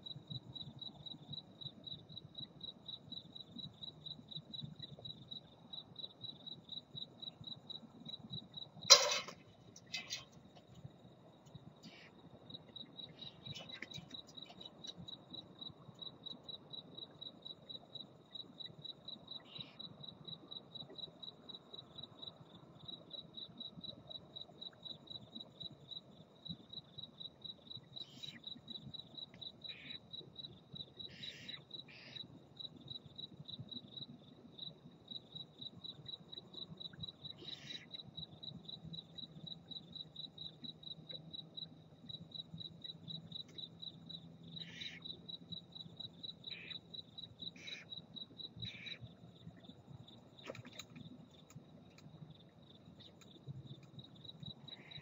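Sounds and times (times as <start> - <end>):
cricket chirping: 0.0 - 55.0.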